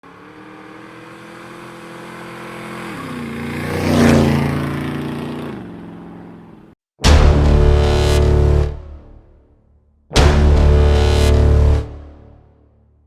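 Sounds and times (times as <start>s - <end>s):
motorcycle engine passing by: 0.0s - 6.8s.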